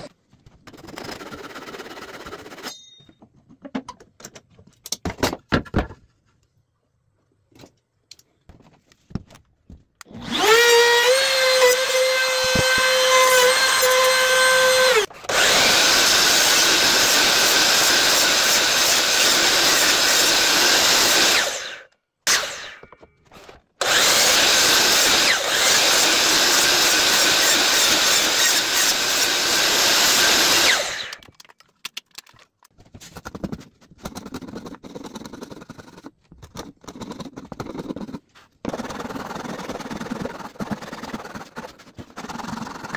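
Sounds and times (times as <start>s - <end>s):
power tool cutting wood: 10.0s - 23.0s, 23.8s - 31.2s.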